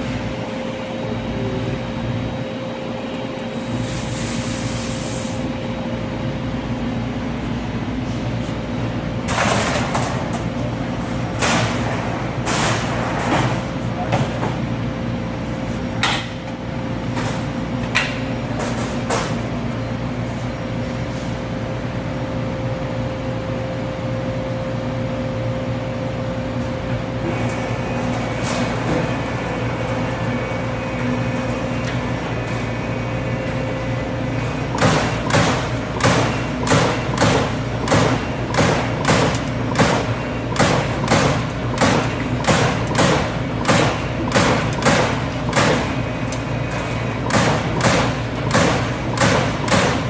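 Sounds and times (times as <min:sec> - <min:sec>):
punch press hitting sheet metal: 0:11.2 - 0:13.7, 0:34.7 - 0:46.1, 0:46.8 - 0:50.0
machine humming: 0:26.1 - 0:50.0.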